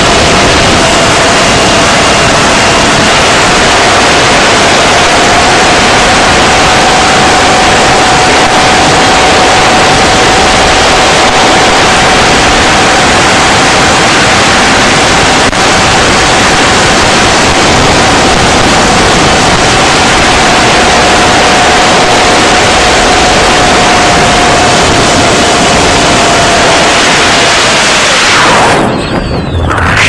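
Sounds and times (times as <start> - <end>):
quadcopter motors whining: 0.0 - 30.0.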